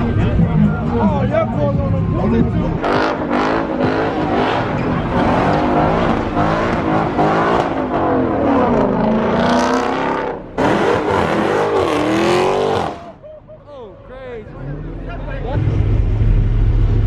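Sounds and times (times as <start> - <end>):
car engine revving: 0.0 - 13.2.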